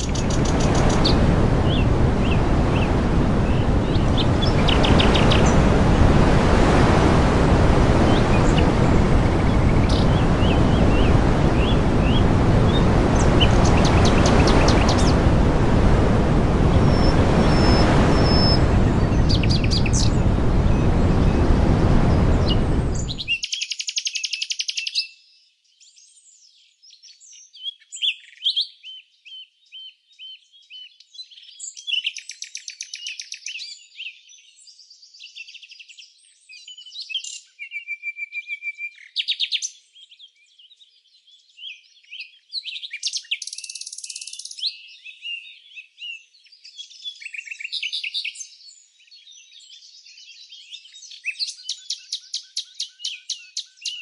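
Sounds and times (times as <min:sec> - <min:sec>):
songbirds chirping and trilling: 0:00.0 - 0:06.8, 0:07.4 - 0:54.0
loud rushing noise: 0:00.0 - 0:23.4.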